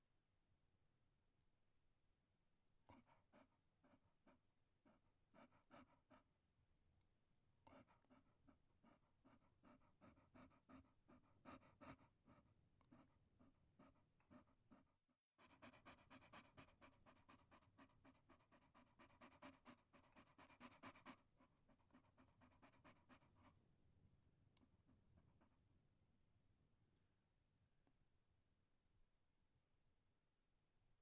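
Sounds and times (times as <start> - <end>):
dog panting: 2.9 - 6.4, 7.6 - 23.8.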